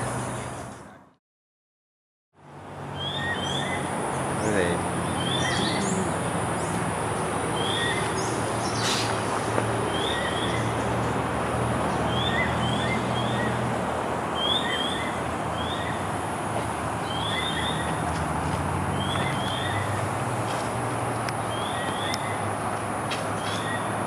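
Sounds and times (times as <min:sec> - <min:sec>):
bird chirping: 0:02.9 - 0:09.2, 0:09.9 - 0:11.1, 0:11.9 - 0:13.6, 0:14.4 - 0:16.1, 0:17.0 - 0:18.0.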